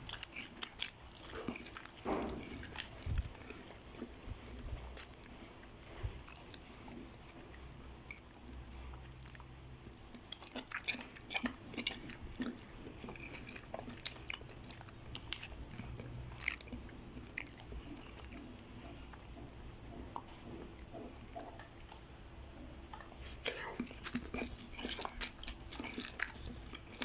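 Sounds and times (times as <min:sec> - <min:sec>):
person chewing and biting: 0:00.0 - 0:27.0
wet mouth clicks: 0:23.2 - 0:27.0.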